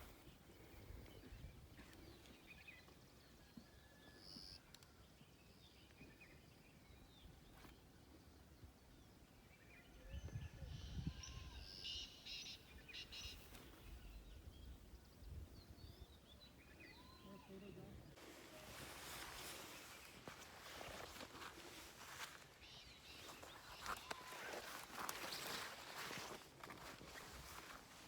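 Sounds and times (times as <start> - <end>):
faint bird chirps: 0.0 - 26.4.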